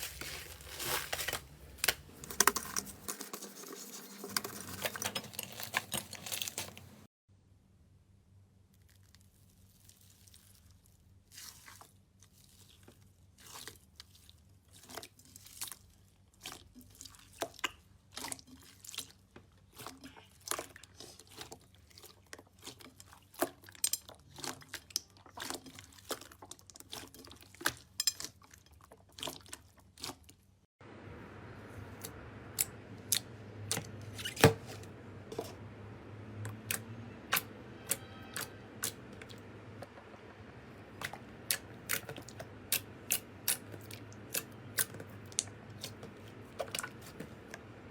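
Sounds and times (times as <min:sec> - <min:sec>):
slime squelching and crackling: 0:00.0 - 0:07.1, 0:08.7 - 0:30.5, 0:36.5 - 0:47.7
low hum: 0:30.8 - 0:47.9.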